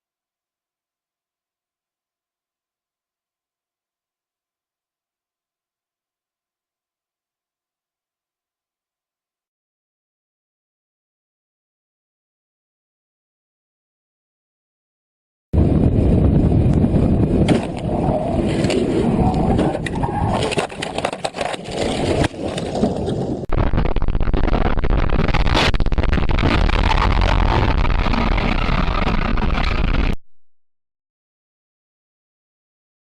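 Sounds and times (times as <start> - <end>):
vehicle road and wind noise: 15.6 - 23.5
knocks and scrapes: 17.4 - 23.5.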